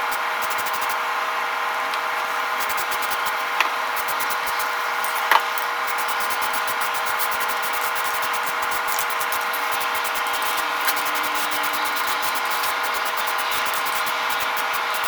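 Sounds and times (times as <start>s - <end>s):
motor hum: 4.0s - 15.0s
power tool grinding metal: 5.0s - 15.0s.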